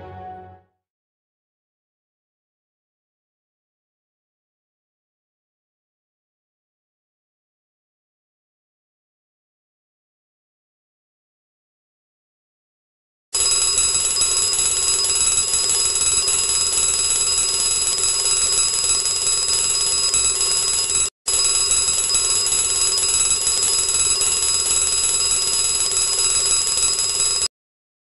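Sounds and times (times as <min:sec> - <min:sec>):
alarm clock ringing: 0:13.4 - 0:27.5.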